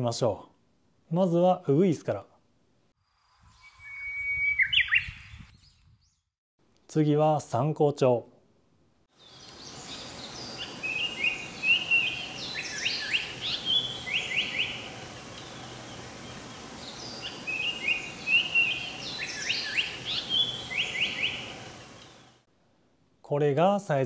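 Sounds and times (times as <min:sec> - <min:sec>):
bird singing whistled notes: 0:03.4 - 0:06.3, 0:09.2 - 0:15.7, 0:16.8 - 0:22.2
steady background hiss: 0:09.2 - 0:24.0.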